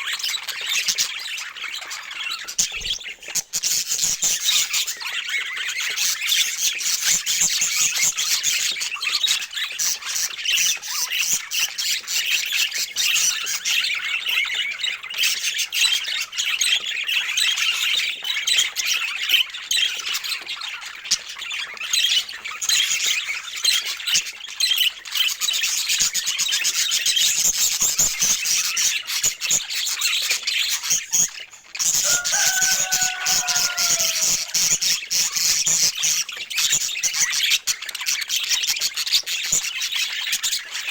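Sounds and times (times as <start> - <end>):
budgerigars chattering: 29.8 - 40.9.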